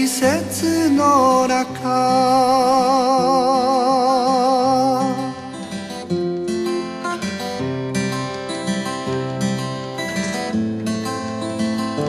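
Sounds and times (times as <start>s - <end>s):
man singing with vibrato: 0.0s - 5.7s
strummed acoustic guitar: 0.0s - 12.0s.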